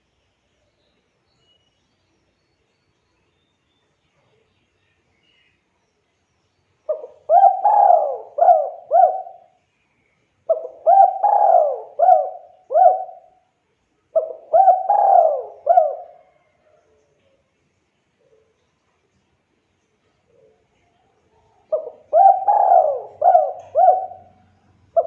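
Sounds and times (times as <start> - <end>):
dove cooing: 6.9 - 9.5, 10.5 - 13.4, 14.1 - 16.8, 21.6 - 25.0.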